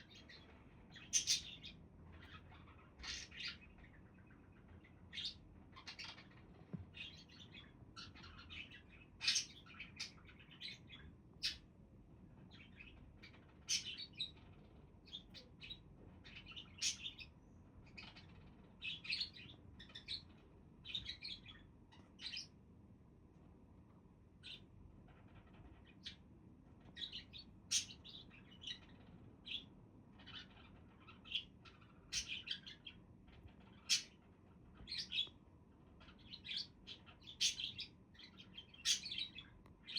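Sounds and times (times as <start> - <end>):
budgerigars chirping: 0.0 - 6.4, 7.0 - 11.6, 12.5 - 14.5, 15.1 - 17.3, 27.0 - 34.2, 36.0 - 39.9.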